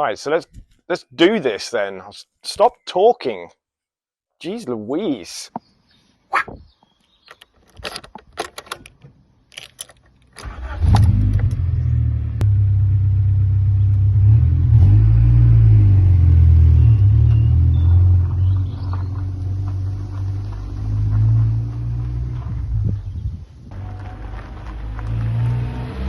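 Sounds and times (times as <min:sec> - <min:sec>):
clicks and knocks: 0:07.2 - 0:10.4
car engine starting and running: 0:09.6 - 0:26.0.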